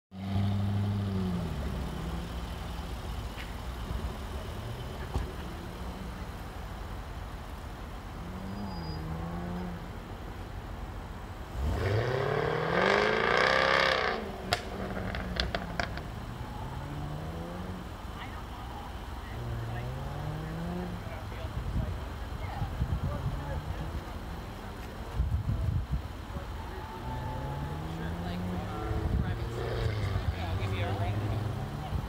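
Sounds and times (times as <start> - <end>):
sports car engine revving: 8.0 - 10.0, 11.4 - 18.0, 19.2 - 21.2.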